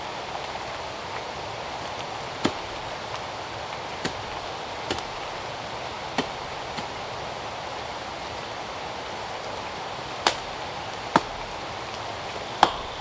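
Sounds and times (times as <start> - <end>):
steady rushing noise: 0.0 - 13.0
chopping strikes: 2.4 - 3.1, 3.9 - 5.5, 6.1 - 6.9, 10.2 - 11.6, 12.6 - 13.0.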